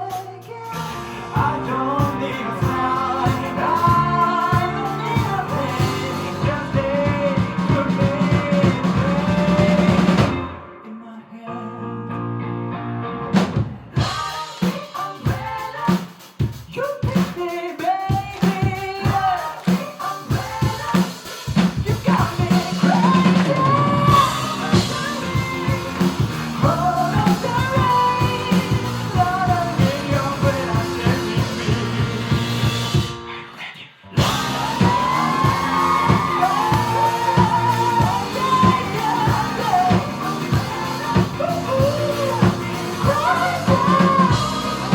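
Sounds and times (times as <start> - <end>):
pop-rock band playing: 0.0 - 10.8, 13.3 - 33.5, 34.2 - 44.9
person singing: 0.0 - 12.2, 13.9 - 44.9.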